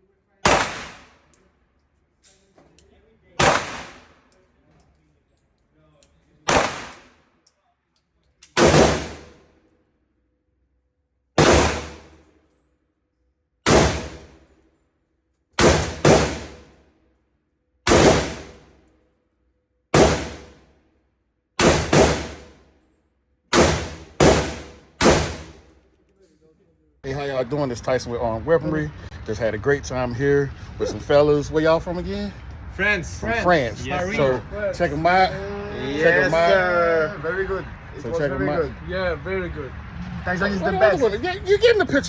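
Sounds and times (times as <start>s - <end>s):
gunshots ringing out: 0.4s - 1.3s, 3.4s - 4.2s, 6.5s - 7.2s, 8.6s - 9.4s, 11.4s - 12.2s, 13.6s - 14.4s, 15.6s - 16.8s, 17.9s - 18.7s, 20.0s - 20.6s, 21.6s - 22.6s, 23.5s - 25.7s.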